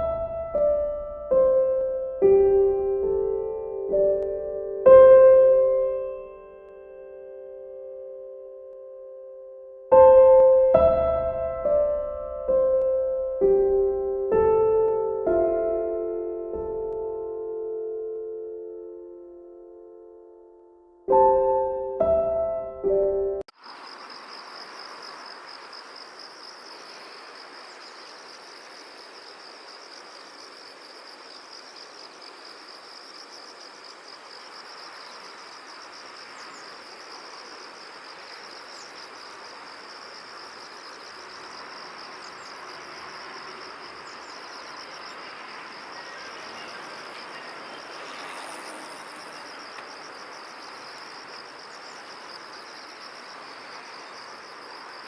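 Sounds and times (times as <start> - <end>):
insects trilling: 23.5 - 55.0.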